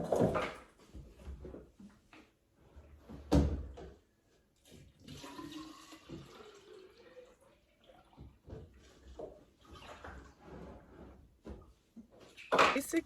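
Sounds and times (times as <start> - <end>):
water pouring into bottle: 5.1 - 8.1.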